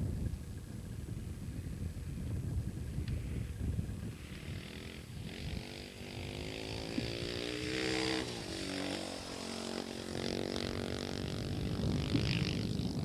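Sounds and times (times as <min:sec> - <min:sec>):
dirt bike engine revving: 0:04.1 - 0:13.0.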